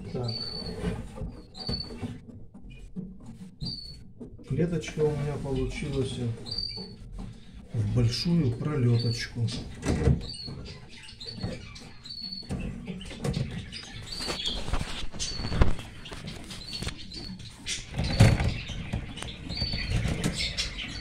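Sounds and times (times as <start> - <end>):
caged birds chirping: 0.0 - 21.0
cage rustling and knocking: 9.5 - 21.0.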